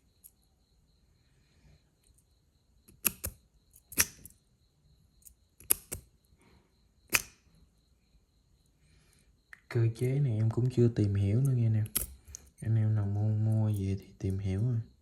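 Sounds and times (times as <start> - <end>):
metal lighter clicks: 2.9 - 4.3, 5.6 - 6.0, 7.1 - 7.4, 11.8 - 12.1.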